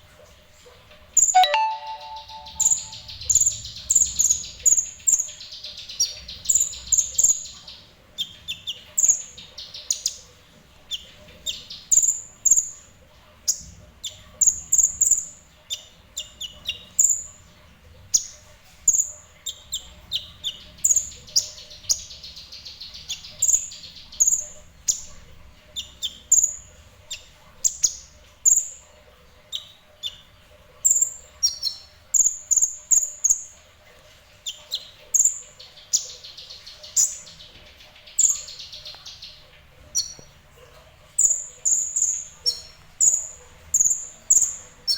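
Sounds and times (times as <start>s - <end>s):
bird chirping: 1.2s - 10.3s, 29.5s - 33.6s, 34.4s - 40.4s, 41.2s - 44.9s.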